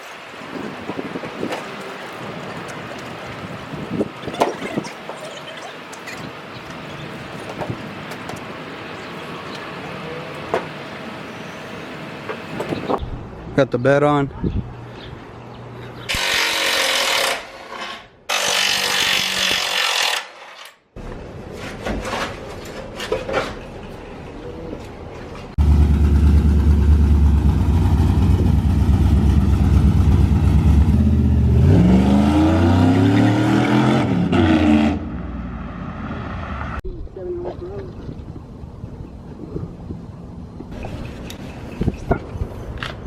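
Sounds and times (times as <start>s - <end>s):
vehicle engine running: 25.6s - 31.7s.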